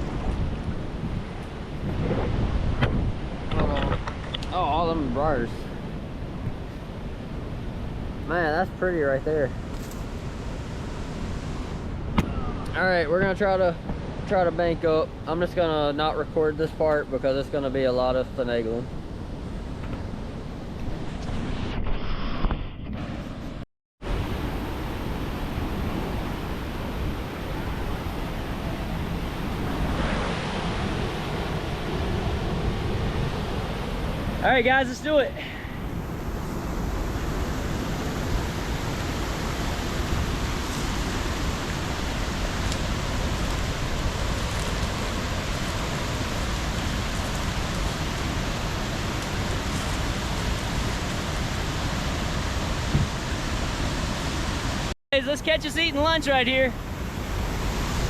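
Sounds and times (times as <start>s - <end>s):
wind buffeting microphone: 0.0s - 14.3s, 24.2s - 54.9s
creek water rushing over rocks: 36.6s - 54.9s.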